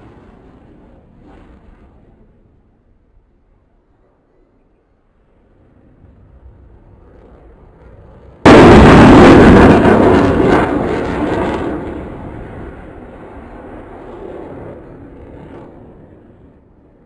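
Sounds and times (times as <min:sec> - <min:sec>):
jet aircraft roaring past: 0:05.2 - 0:17.0.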